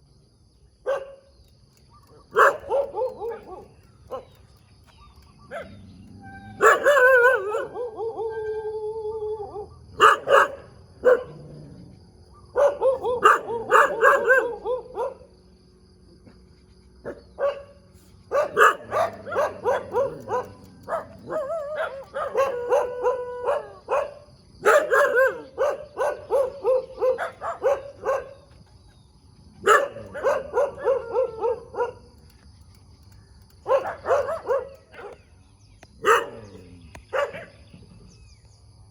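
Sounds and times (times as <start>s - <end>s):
dogs barking: 0.9s - 1.2s, 2.0s - 4.4s, 5.1s - 8.3s, 9.9s - 15.3s, 17.0s - 28.6s, 29.4s - 32.2s, 33.6s - 35.3s, 36.0s - 37.8s
dog howling: 5.5s - 10.1s, 18.4s - 28.3s, 29.6s - 32.0s.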